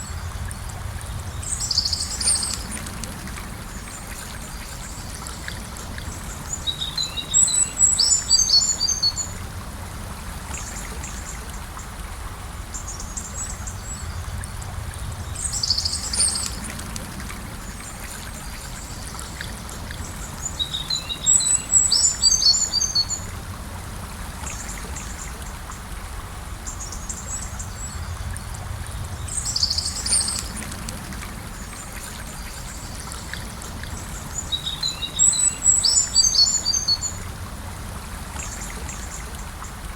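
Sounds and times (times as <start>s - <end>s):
small birds singing: 0.0s - 2.9s, 3.7s - 9.4s, 15.0s - 16.9s, 17.6s - 23.3s, 26.7s - 30.7s, 31.5s - 37.2s
river flowing: 0.0s - 39.9s.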